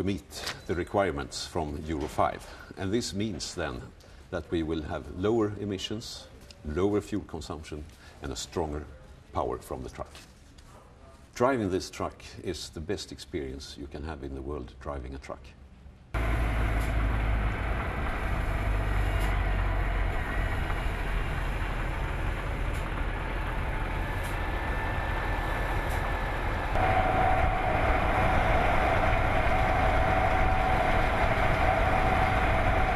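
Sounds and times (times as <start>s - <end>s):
steady whine: 16.2s - 32.9s
truck diesel engine drone: 16.2s - 32.9s
tyre and road noise: 16.2s - 32.9s.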